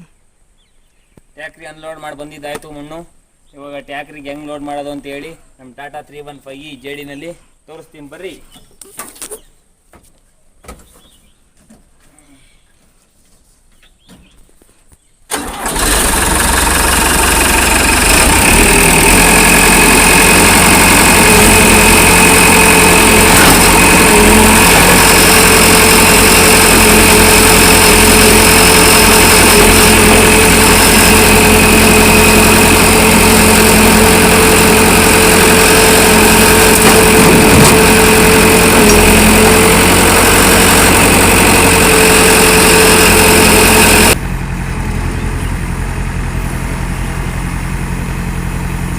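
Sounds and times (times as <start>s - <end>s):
diesel engine starting and running: 15.3s - 48.9s.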